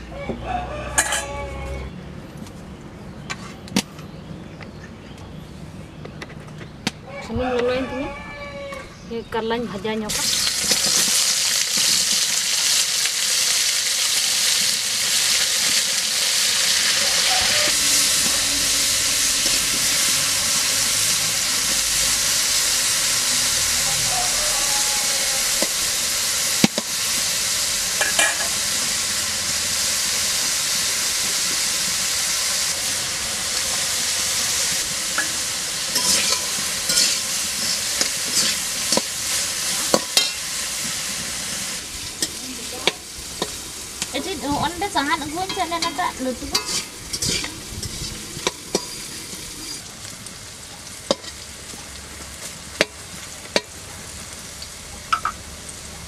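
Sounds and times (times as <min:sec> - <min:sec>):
vegetables sizzling in oil: 0:10.0 - 0:56.0.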